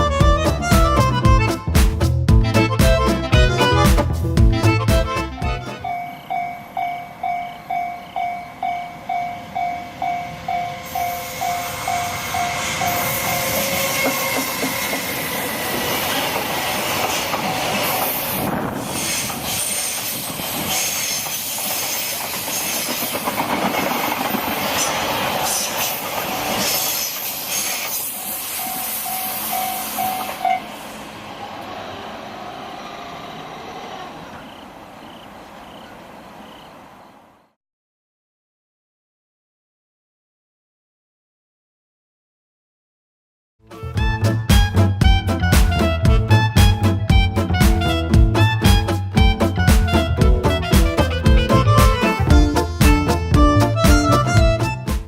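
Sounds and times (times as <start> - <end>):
freight train rumbling past: 0.0 - 37.5, 43.7 - 55.0
level crossing alarm ringing: 5.8 - 14.4, 28.6 - 30.7
train wheel clatter: 10.8 - 30.8.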